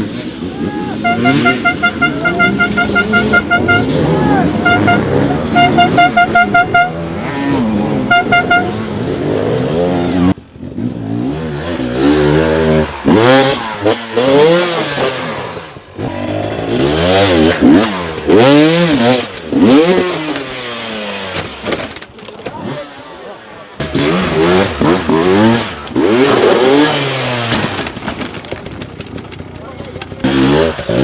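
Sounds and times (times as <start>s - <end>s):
dirt bike engine revving: 0.0s - 21.8s, 22.5s - 27.8s, 29.4s - 31.0s
short horn toots: 0.8s - 9.1s.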